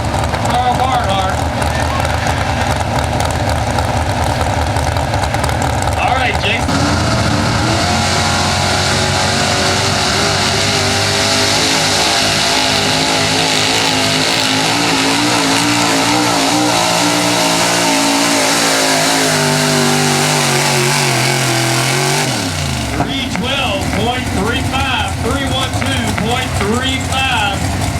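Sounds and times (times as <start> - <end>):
truck engine revving hard: 0.0 - 27.9.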